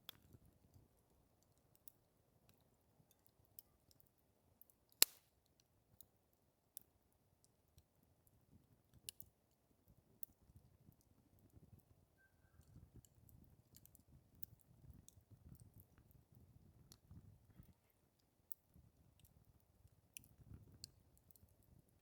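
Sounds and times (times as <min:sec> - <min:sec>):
campfire crackling: 0:00.0 - 0:06.2, 0:12.6 - 0:22.0
loud pop of burning wood: 0:05.0 - 0:05.3.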